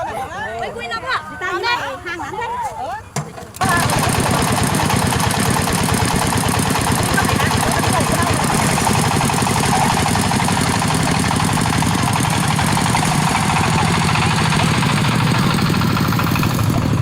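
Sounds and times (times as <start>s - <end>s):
engine chugging: 3.6s - 17.0s.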